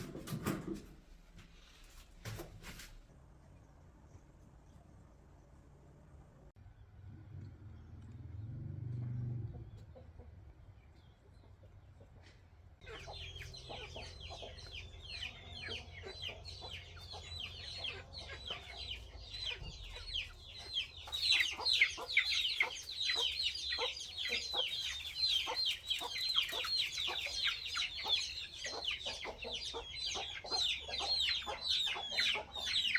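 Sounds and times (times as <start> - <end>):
chickens calling: 9.2 - 32.9.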